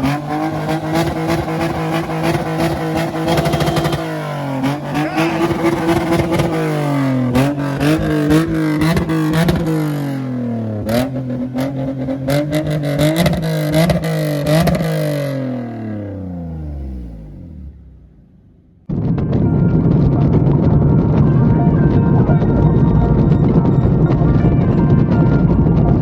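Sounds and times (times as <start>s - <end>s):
car engine revving: 0.0s - 26.0s
exhaust crackling pops: 18.8s - 26.0s.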